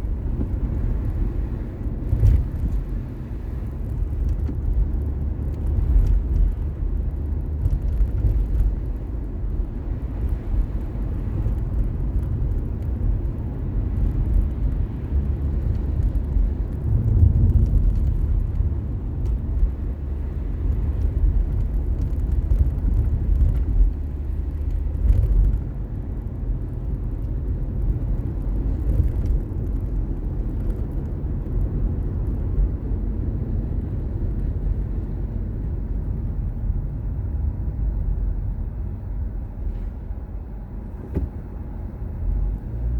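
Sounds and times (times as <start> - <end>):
car engine and tyre noise: 0.0 - 42.9.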